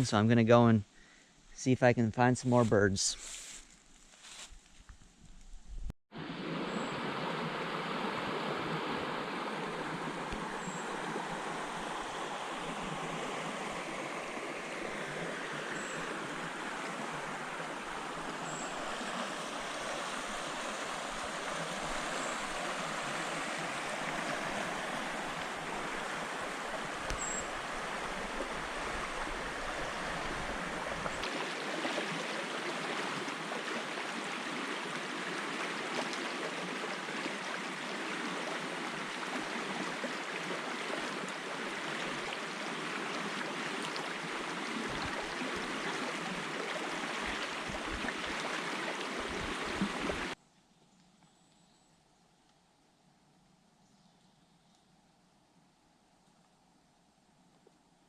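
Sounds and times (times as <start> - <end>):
running water rushing: 6.1 - 50.4.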